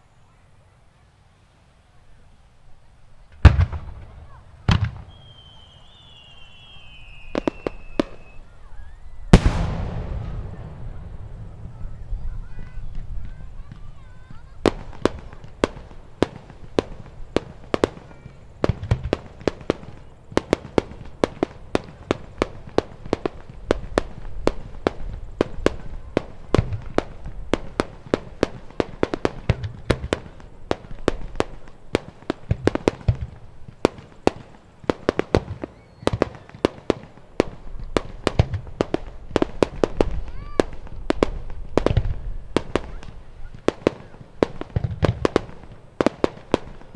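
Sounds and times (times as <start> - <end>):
fireworks cracking: 3.2 - 46.9
deep firework booms: 9.3 - 18.0.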